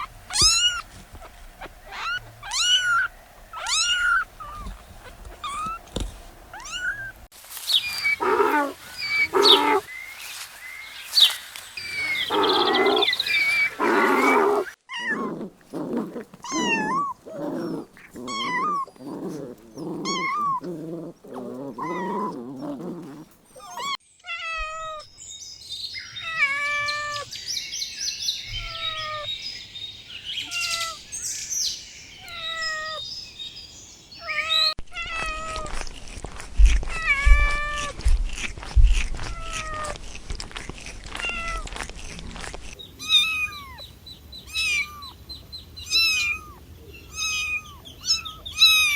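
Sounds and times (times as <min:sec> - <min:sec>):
young animals crying: 0:01.6 - 0:05.8, 0:06.5 - 0:07.2, 0:07.8 - 0:10.4, 0:11.1 - 0:25.0, 0:26.2 - 0:27.3, 0:28.5 - 0:29.3, 0:30.4 - 0:31.0, 0:32.2 - 0:33.0, 0:36.8 - 0:38.0, 0:39.0 - 0:40.2, 0:41.1 - 0:48.9.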